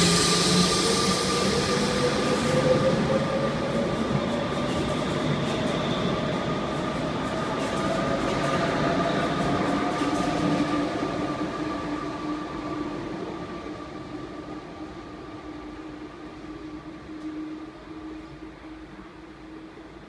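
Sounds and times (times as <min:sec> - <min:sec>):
electric train rolling: 0:00.0 - 0:14.2
steady train hum: 0:00.0 - 0:20.0.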